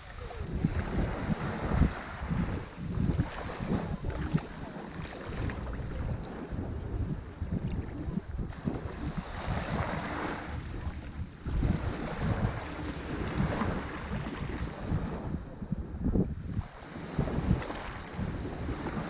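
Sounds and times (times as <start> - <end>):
ocean waves breaking on shore: 0.0 - 19.0
wind rumbling on microphone: 0.0 - 19.0.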